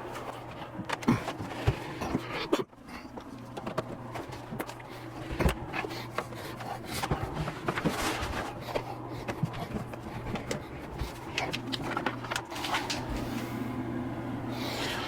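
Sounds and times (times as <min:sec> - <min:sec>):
steady low hum: 0:00.0 - 0:15.0
knocks and clicks of handling: 0:00.6 - 0:13.2
rubbing and scraping: 0:03.4 - 0:13.3.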